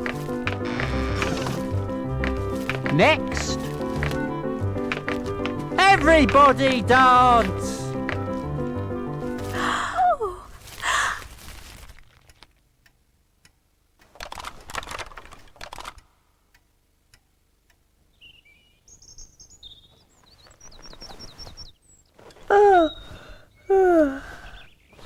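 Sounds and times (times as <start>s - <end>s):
small birds chirping: 0.0s - 9.8s, 18.0s - 25.0s.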